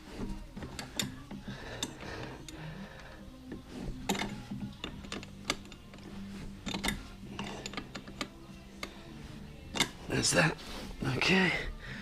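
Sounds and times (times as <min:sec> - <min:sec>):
metallic wrench clicks: 0:04.0 - 0:06.0, 0:06.6 - 0:09.0, 0:09.7 - 0:10.0.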